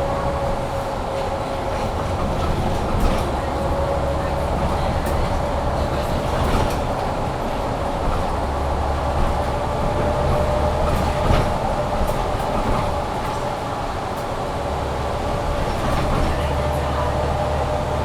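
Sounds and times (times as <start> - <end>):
bus drivetrain and road rumble: 0.0 - 18.0.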